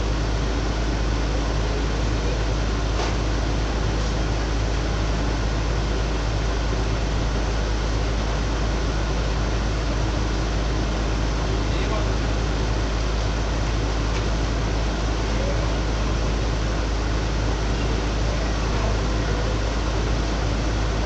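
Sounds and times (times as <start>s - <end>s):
diesel machinery engine hum: 0.0s - 21.0s.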